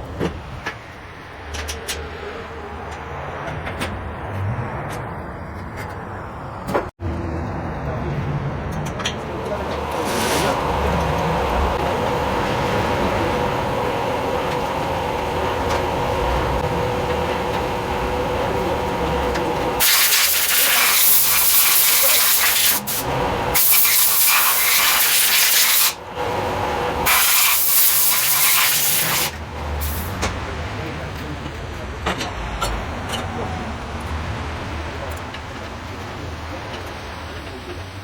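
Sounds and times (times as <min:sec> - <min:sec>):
machine hum: 0:00.0 - 0:06.9, 0:08.6 - 0:31.0
high-pressure jet hissing: 0:09.3 - 0:30.2.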